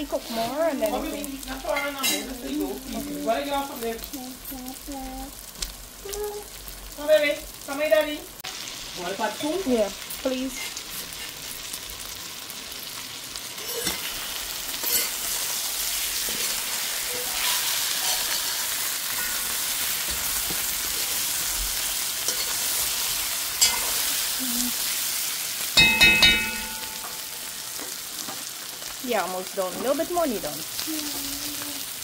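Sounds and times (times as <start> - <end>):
food sizzling in a metal pot: 0.0 - 32.0
ringing metal knocks on pot: 25.8 - 27.4.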